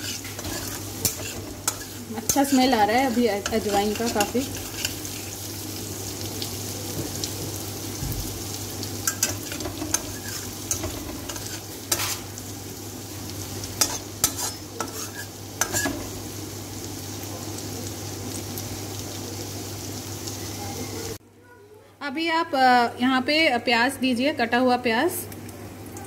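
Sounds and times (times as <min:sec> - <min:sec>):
spatula scraping pan: 0:00.0 - 0:05.5, 0:09.0 - 0:12.4, 0:13.7 - 0:16.2
food sizzling in hot oil: 0:00.0 - 0:21.2.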